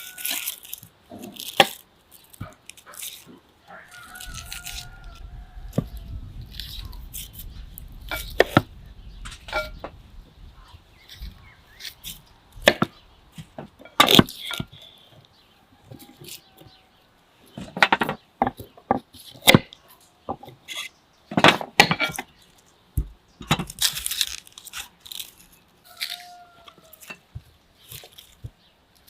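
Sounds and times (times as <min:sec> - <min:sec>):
wood knocking and cracking: 0:12.6 - 0:14.8, 0:23.0 - 0:24.9.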